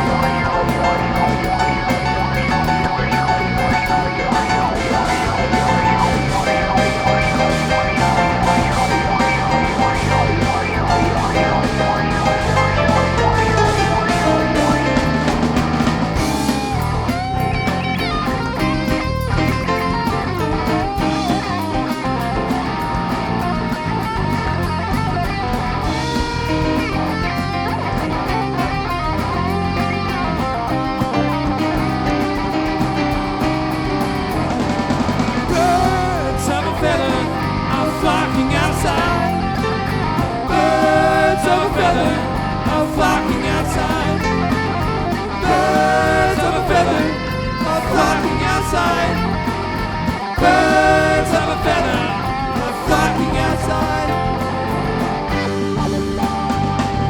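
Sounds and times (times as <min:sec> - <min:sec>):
electric guitar lead: 0:00.0 - 0:57.0
live rock band playing: 0:00.0 - 0:57.0.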